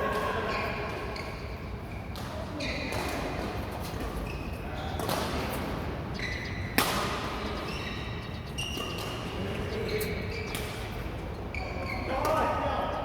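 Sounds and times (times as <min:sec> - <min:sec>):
shoes squeaking on court: 0:00.5 - 0:12.5
racket hitting shuttlecock: 0:06.7 - 0:07.4.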